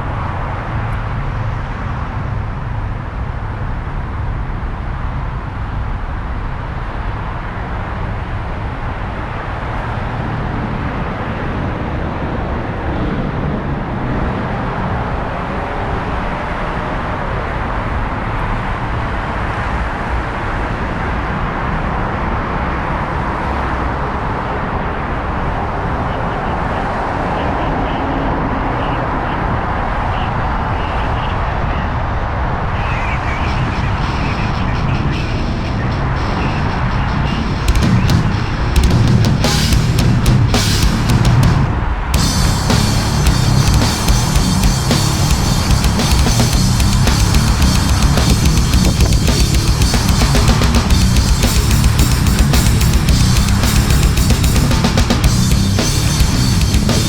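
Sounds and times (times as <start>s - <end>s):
car wind and road noise: 33.8s - 57.0s.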